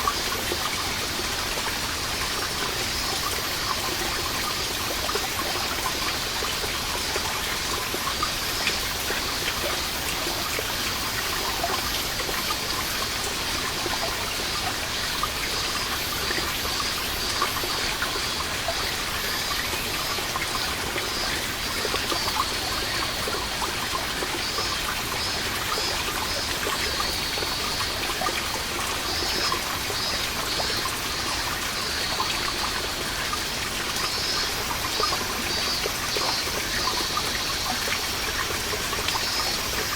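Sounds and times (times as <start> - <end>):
cicadas singing: 14.0 - 39.9.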